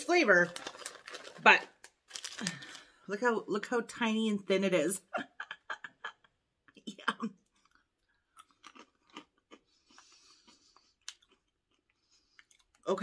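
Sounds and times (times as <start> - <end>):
person crunching potato sticks: 0.5 - 2.9, 7.5 - 12.8.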